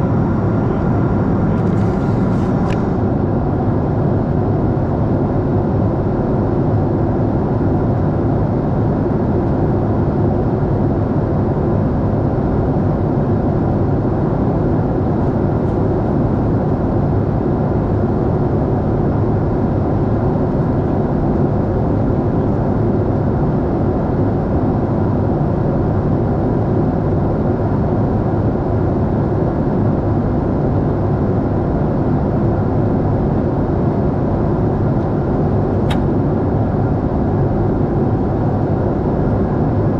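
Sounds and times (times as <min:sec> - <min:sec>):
airliner cabin noise: 0:00.0 - 0:03.7, 0:31.7 - 0:38.8.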